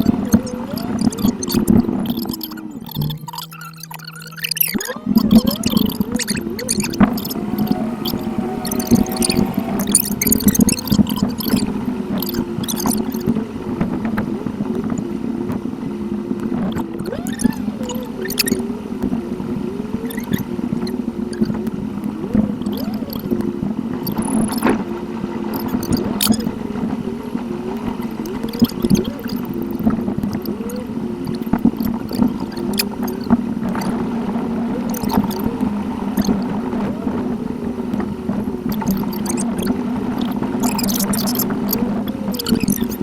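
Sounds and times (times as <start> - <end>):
sped-up engine and road hum: 0.0 - 3.4, 4.8 - 43.0
wavering high tone: 4.8 - 11.4.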